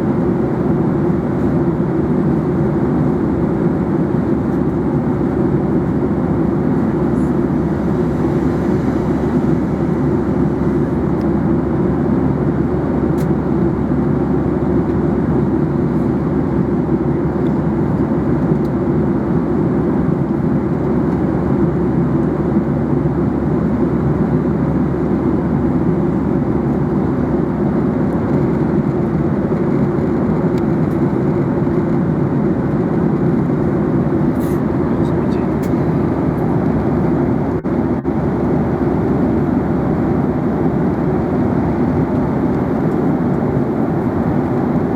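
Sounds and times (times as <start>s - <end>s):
airliner cabin noise: 0.0s - 13.6s, 24.7s - 44.9s.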